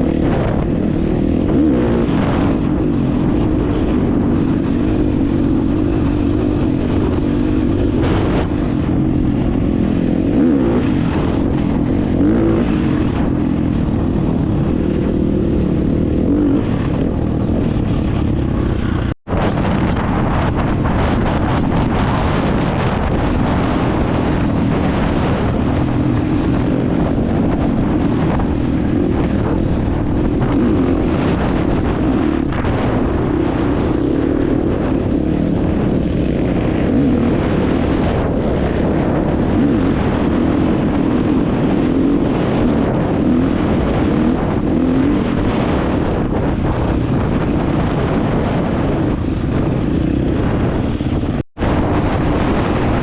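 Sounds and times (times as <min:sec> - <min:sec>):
dirt bike engine running: 0:00.0 - 0:53.0
wind buffeting microphone: 0:00.0 - 0:53.0.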